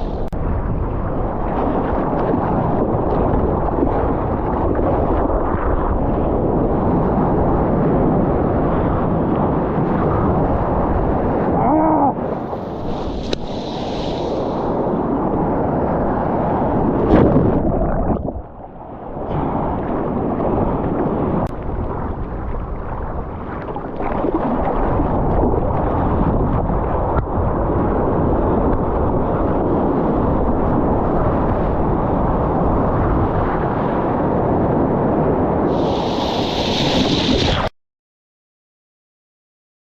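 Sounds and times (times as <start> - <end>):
wind buffeting microphone: 0.0 - 37.6
water rushing and splashing: 11.5 - 27.5.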